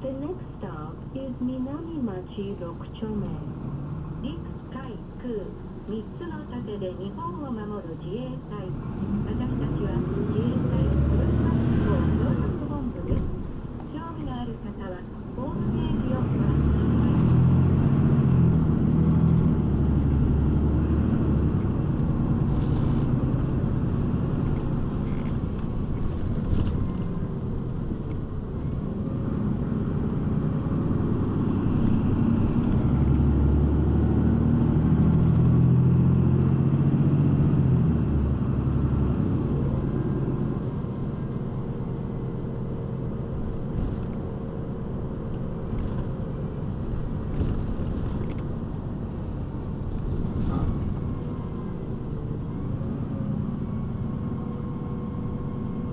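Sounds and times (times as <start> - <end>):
bus engine and road noise: 0.0 - 55.9.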